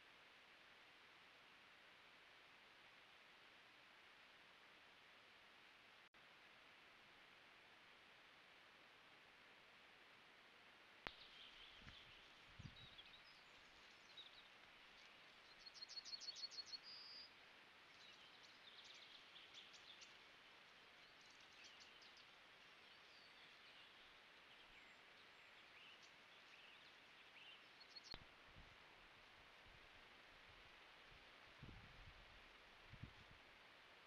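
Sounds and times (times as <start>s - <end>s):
steady hiss: 0.0s - 34.0s
songbirds calling: 11.0s - 28.3s.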